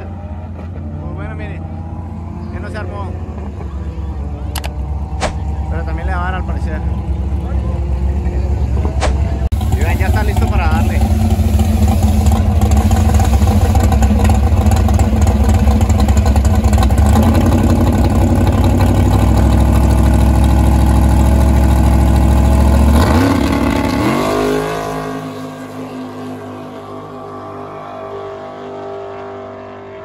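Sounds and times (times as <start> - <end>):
drag car engine running: 1.2 - 30.0.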